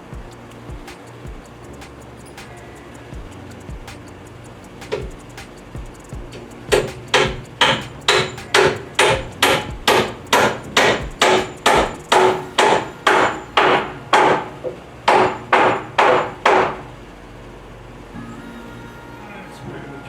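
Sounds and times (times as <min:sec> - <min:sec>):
hammer driving nails into wood: 0:15.1 - 0:16.8.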